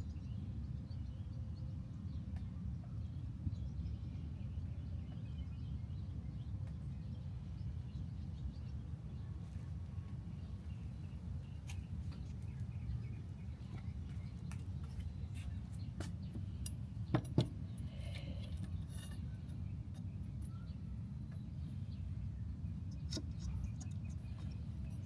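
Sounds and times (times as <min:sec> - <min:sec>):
light clicks and clinks: 0:13.8 - 0:22.0, 0:22.8 - 0:25.0.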